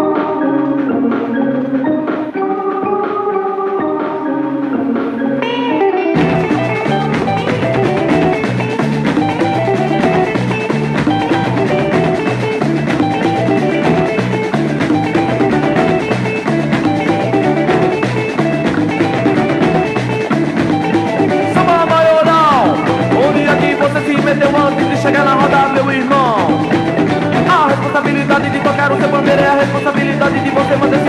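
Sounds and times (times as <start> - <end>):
instrumental band music: 0.0 - 31.0
repeating bass riff: 0.0 - 31.0.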